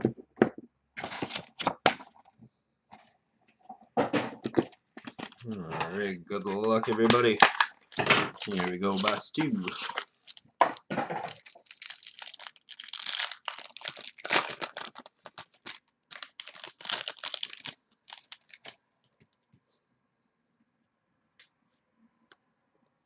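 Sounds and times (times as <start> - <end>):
plastic wrapping tearing and crinkling: 5.0 - 18.8.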